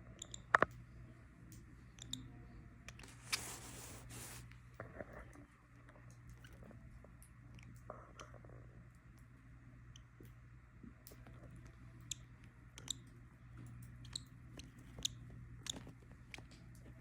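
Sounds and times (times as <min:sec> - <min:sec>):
low steady hum: 0:00.0 - 0:17.0
birds nibbling with beaks: 0:11.0 - 0:17.0.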